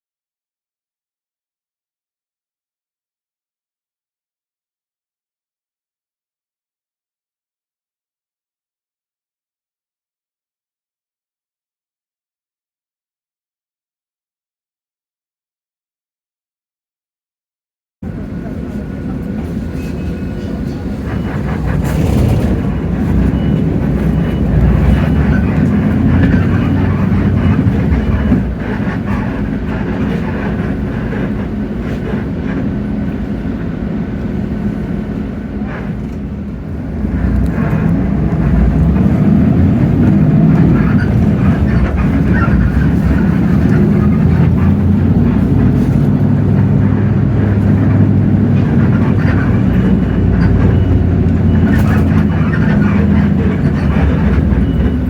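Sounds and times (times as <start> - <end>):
bus diesel engine running: 18.0 - 55.0.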